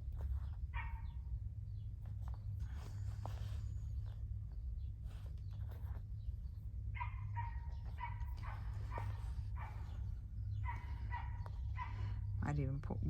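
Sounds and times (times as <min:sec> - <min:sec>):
low steady hum: 0:00.0 - 0:13.0
small dog yapping: 0:00.7 - 0:01.2, 0:07.0 - 0:12.3.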